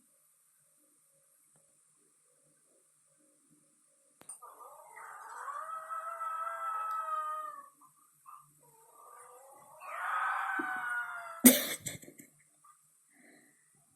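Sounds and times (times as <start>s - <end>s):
dog howling: 4.4s - 11.5s.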